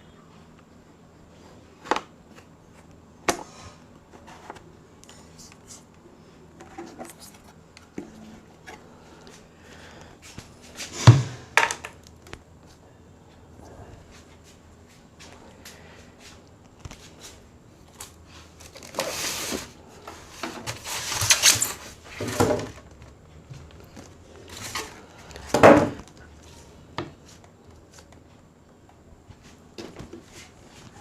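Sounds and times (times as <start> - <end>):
scrapes and rustles: 13.8 - 22.9.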